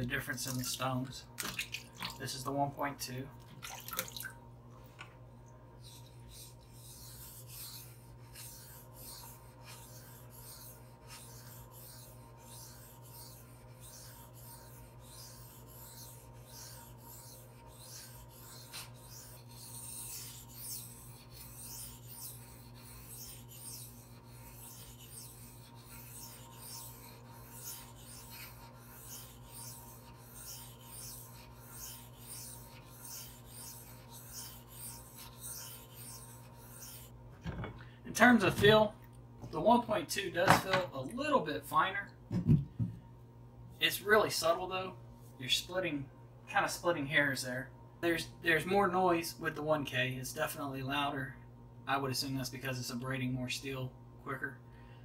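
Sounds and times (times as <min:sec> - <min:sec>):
knife scraping on sharpening stone: 0:05.9 - 0:37.1.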